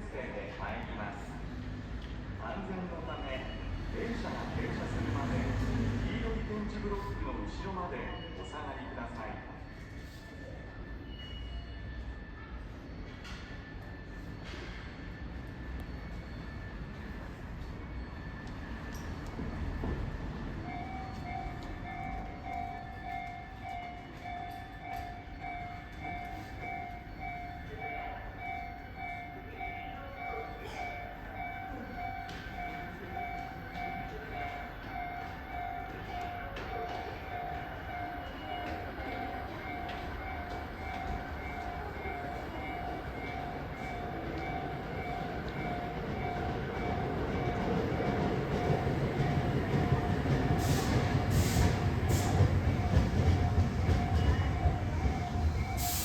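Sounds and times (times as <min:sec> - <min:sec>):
electric train rumbling: 0:00.0 - 0:56.0
warning bell ringing: 0:20.7 - 0:56.0.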